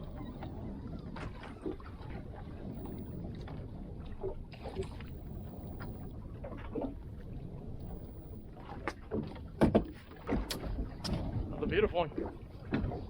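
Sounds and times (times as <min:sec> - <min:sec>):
water and wind around boat: 0:00.0 - 0:13.0
light knocks on boat: 0:08.8 - 0:11.3, 0:12.6 - 0:13.0.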